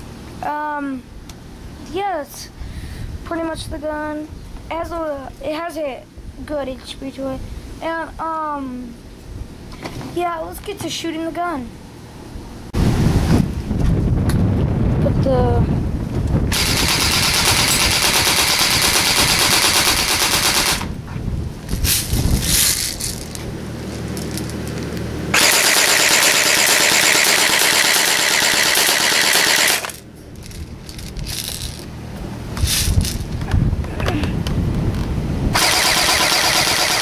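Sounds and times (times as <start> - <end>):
airsoft rifle rapid clicking: 16.5 - 20.9, 25.4 - 30.0, 35.6 - 37.0.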